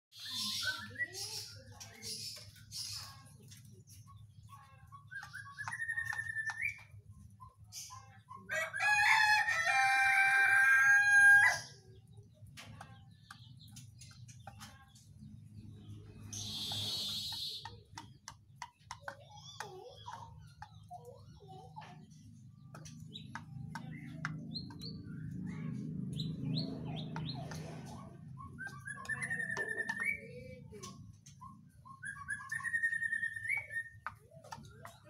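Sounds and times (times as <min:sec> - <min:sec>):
thrush whistling and calling: 0:05.0 - 0:06.9, 0:16.3 - 0:17.7, 0:28.3 - 0:30.3, 0:31.4 - 0:34.0
rooster crowing: 0:08.5 - 0:11.7.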